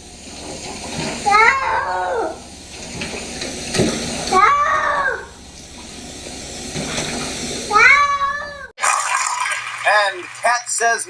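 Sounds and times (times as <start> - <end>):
cat yowling: 1.3 - 2.4, 4.3 - 5.3, 7.7 - 8.7.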